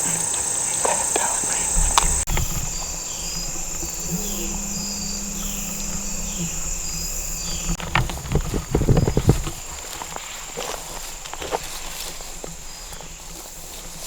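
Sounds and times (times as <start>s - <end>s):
low hum: 0.0s - 9.6s
rustles and knocks: 0.0s - 13.2s
insect chirping: 0.0s - 14.0s
insects buzzing: 0.0s - 14.0s.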